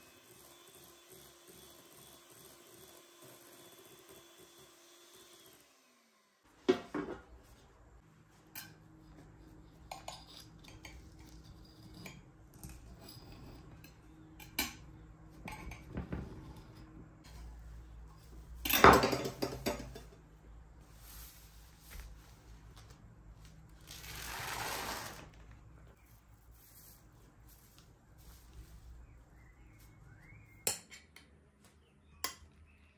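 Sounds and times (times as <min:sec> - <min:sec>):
utensils clinking against dishes: 0:09.8 - 0:15.9, 0:18.6 - 0:20.2.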